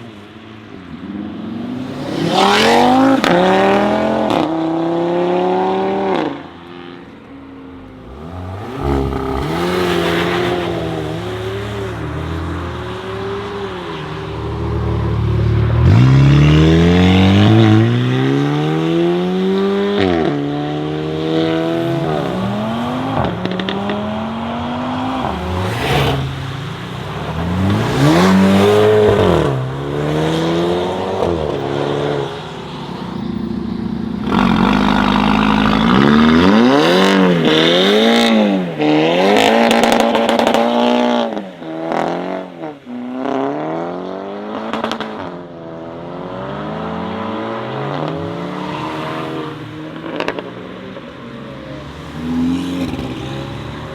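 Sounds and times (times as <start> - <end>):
sports car engines revving hard: 1.0 - 6.5, 7.7 - 50.7.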